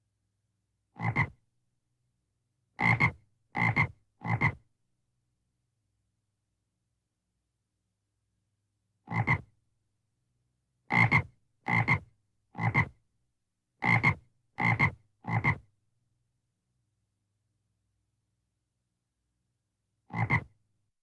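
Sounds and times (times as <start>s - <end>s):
frog croaking: 1.0s - 1.3s, 2.8s - 4.5s, 20.1s - 20.5s.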